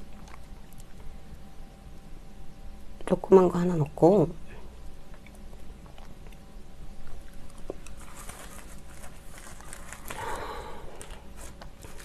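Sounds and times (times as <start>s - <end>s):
wet crunching chewing: 0.0s - 1.4s, 4.8s - 12.0s.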